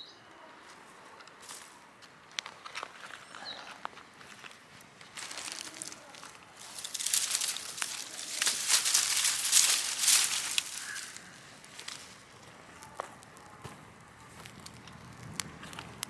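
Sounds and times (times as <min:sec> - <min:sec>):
fire crackling and hissing: 0:04.2 - 0:16.0.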